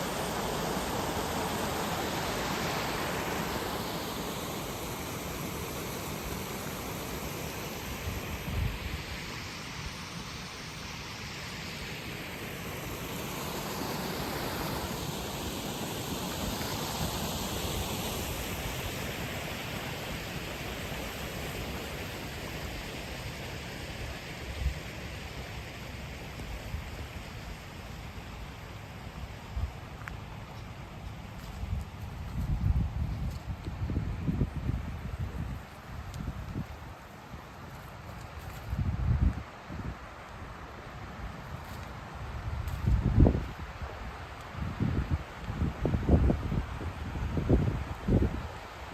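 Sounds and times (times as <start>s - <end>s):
river water rushing: 0.0s - 26.3s.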